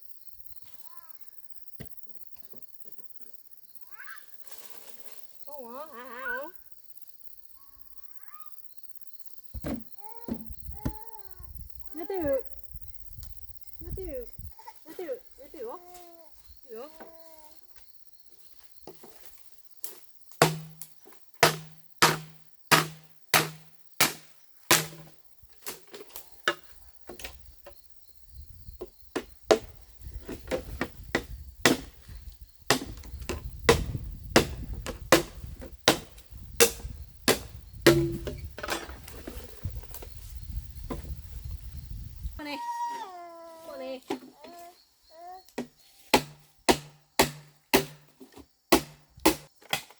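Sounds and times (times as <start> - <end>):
hand tool strikes: 20.4 - 25.1, 35.9 - 38.8, 45.6 - 48.1, 48.7 - 49.9.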